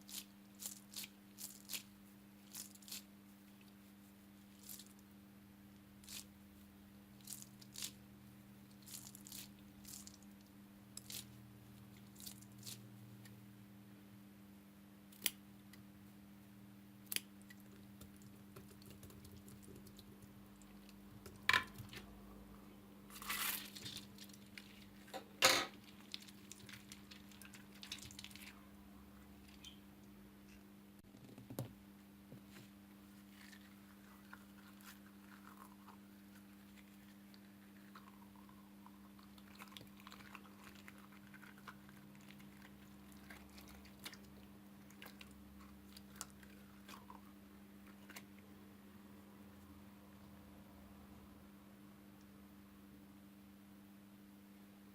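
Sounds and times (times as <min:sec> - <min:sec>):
slime crackling and squishing: 0:00.0 - 0:03.1, 0:04.5 - 0:05.0, 0:07.2 - 0:08.0, 0:08.7 - 0:10.4, 0:25.7 - 0:28.6
faint steady hum: 0:00.0 - 0:54.9.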